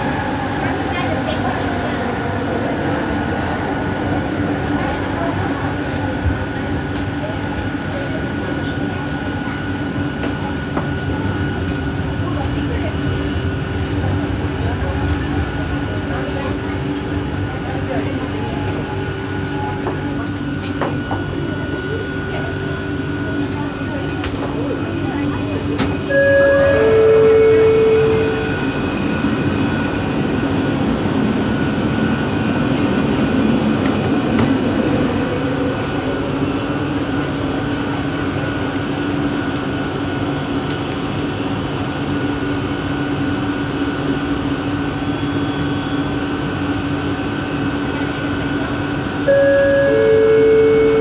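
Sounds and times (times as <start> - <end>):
rumble of running train: 0.0 - 51.0
train motor whine: 26.0 - 29.4, 49.0 - 51.0
two-note electronic chime: 49.3 - 51.0.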